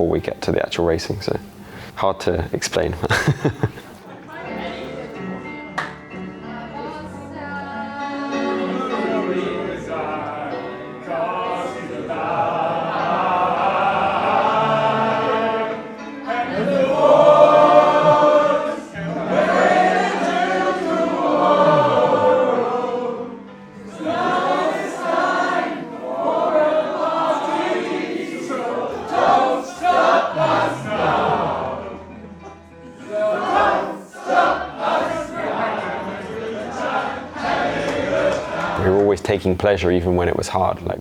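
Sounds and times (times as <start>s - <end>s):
choir singing: 3.0s - 39.3s.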